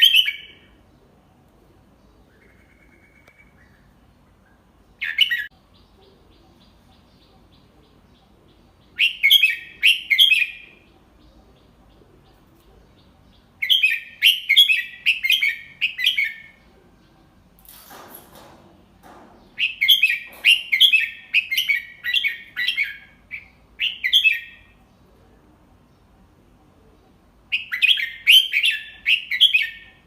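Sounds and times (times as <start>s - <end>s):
bird singing chirping notes: 2.0s - 17.4s.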